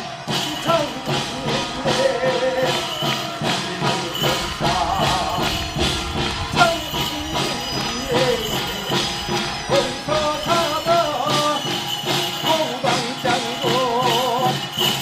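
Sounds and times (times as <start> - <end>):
drum strokes: 0.0 - 15.0
jingling bells: 0.0 - 15.0
wavering melody line: 2.9 - 14.8.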